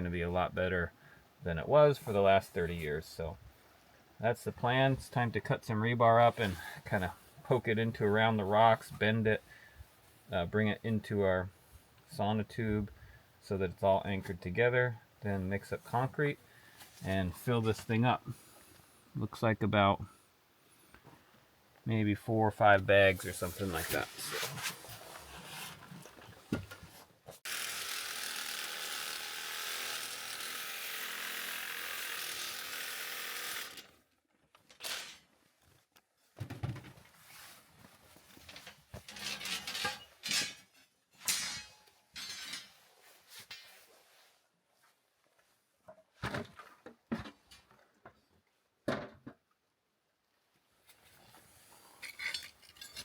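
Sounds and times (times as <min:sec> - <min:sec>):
power tool cutting steel rebar: 0:27.4 - 0:34.0.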